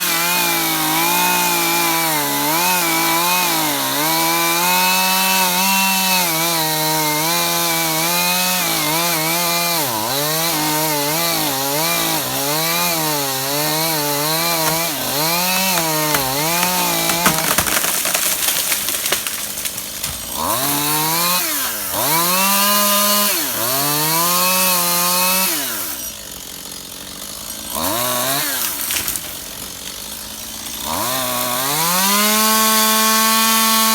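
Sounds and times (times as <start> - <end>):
chainsaw cutting wood: 0.0 - 33.9
rough crackling noise: 14.6 - 20.3.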